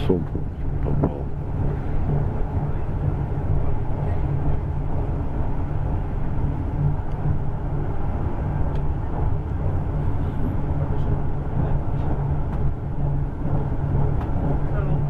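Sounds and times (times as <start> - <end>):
train carriage rumble: 0.0 - 15.0.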